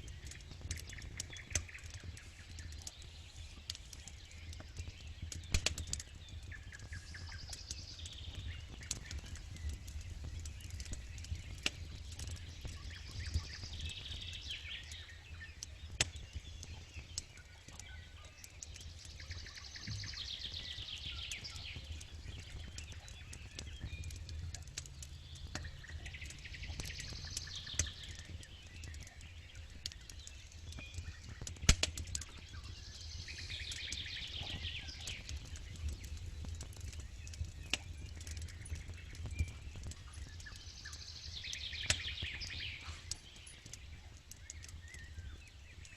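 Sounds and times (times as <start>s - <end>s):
campfire crackling and popping: 0.0s - 45.9s
songbirds singing: 0.0s - 45.9s.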